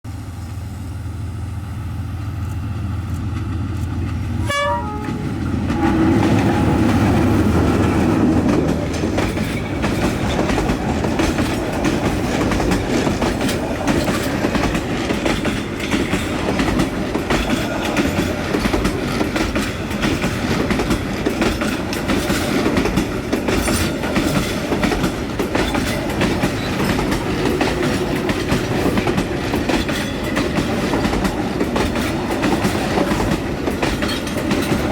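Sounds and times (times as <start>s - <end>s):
train wheels rumbling on rails: 0.1s - 34.9s
train horn: 4.4s - 8.4s.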